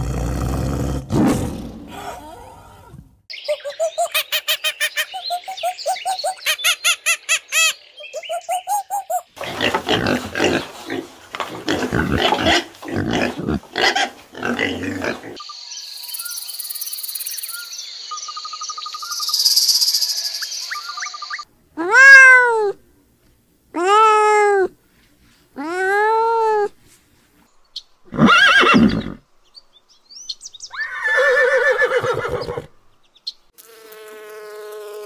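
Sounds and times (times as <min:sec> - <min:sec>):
pigs grunting and squealing: 0:00.0 - 0:03.0, 0:09.4 - 0:15.4
primate whooping: 0:01.9 - 0:03.0.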